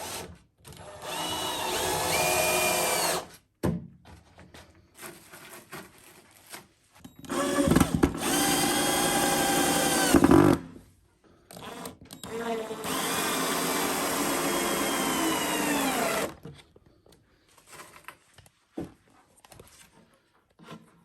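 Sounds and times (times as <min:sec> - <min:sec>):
power drill whining: 0:00.0 - 0:03.3, 0:07.2 - 0:10.6, 0:11.5 - 0:16.5.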